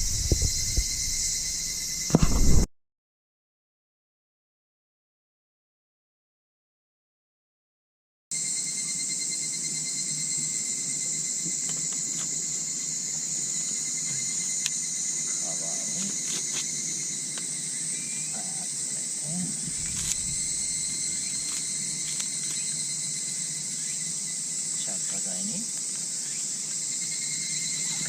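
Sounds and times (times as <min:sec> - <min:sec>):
thin steady insect trills: 0:00.0 - 0:02.2, 0:08.3 - 0:28.0
continuous high insect shrill: 0:00.0 - 0:02.6, 0:08.3 - 0:28.0.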